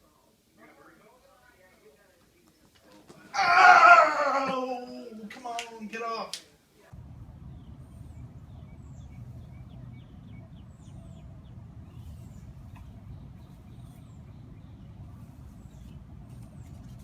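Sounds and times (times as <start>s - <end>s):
small birds chirping: 6.9s - 17.0s
steady low rumble: 6.9s - 17.0s.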